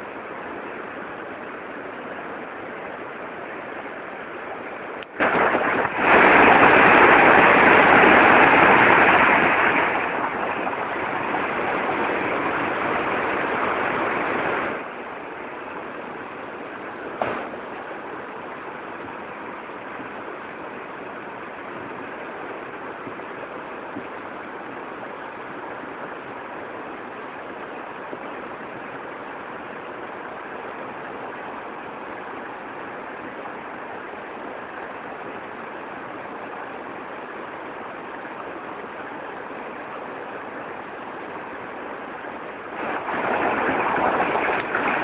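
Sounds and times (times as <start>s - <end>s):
rushing water: 0.0s - 45.0s
water splash: 5.1s - 14.9s, 42.7s - 45.0s.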